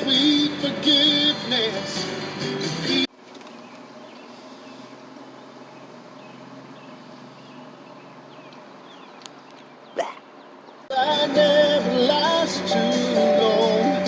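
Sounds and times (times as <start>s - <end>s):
small bird chirps: 3.6s - 10.9s.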